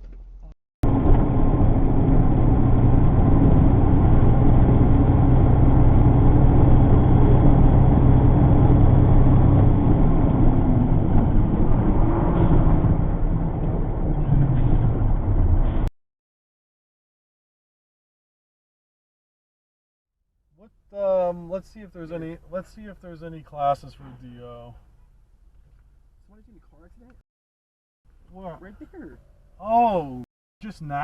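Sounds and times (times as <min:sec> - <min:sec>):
car engine and road noise: 0:00.0 - 0:15.9, 0:20.7 - 0:27.2.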